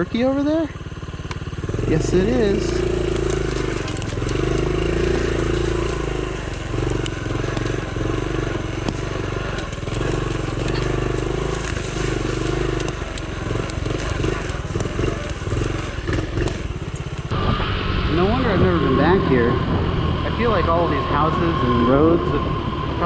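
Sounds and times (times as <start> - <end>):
small motorcycle engine running: 0.0 - 23.0
clicks and crunches on rough ground: 1.2 - 17.4.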